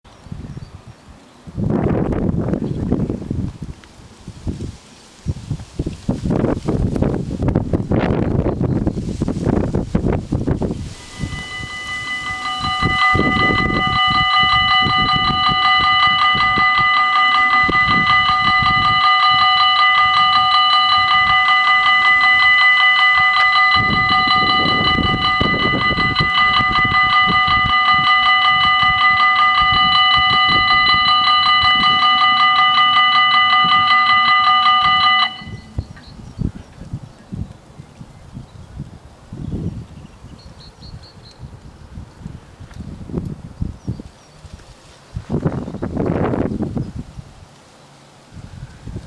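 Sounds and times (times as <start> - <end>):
level crossing warning bells: 10.1 - 36.5.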